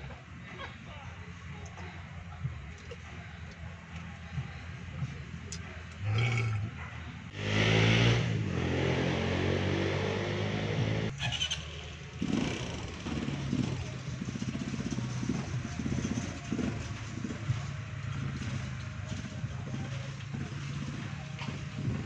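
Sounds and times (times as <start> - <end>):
small motorcycle engine running: 11.2 - 22.0.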